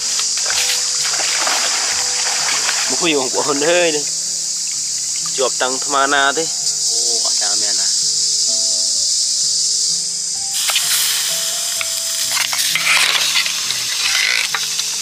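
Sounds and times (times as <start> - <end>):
insects trilling: 0.0 - 15.0
background music: 8.6 - 15.0
sizzle with clicks: 10.4 - 15.0.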